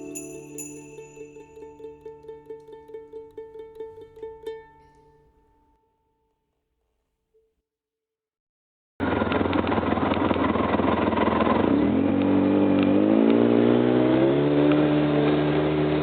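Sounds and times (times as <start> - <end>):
road and wind noise: 9.0 - 16.0
vehicle engine running: 9.0 - 16.0.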